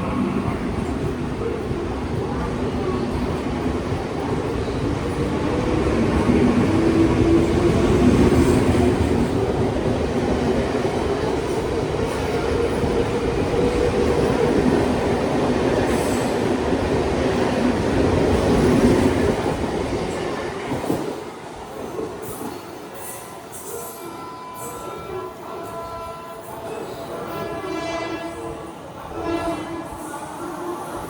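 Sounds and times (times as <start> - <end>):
train wheels rumbling: 0.0 - 23.8.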